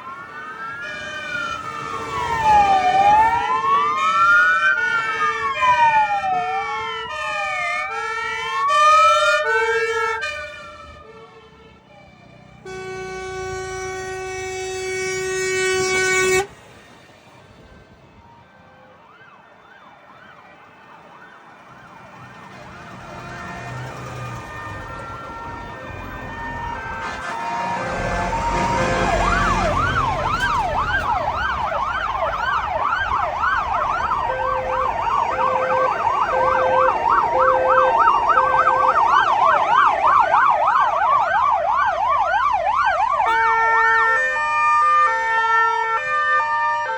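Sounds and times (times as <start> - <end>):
truck engine rumble: 0.0 - 19.3, 20.2 - 46.9
fire truck sirens wailing: 0.0 - 46.9
loud steady horn blast: 9.2 - 11.4, 12.6 - 16.6, 22.6 - 24.4, 26.9 - 31.4, 34.3 - 39.1, 43.2 - 44.4.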